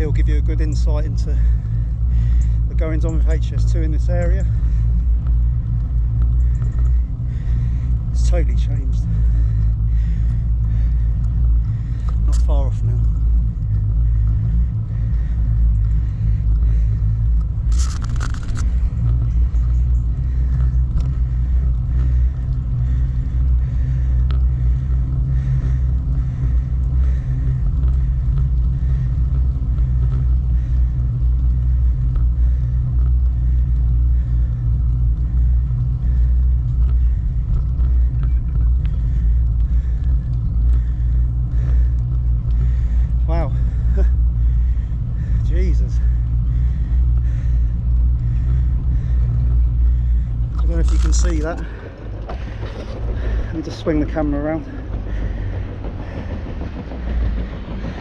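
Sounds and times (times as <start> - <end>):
bicycle tyre noise on road: 0.0 - 58.0
sharp rattle: 17.6 - 20.7.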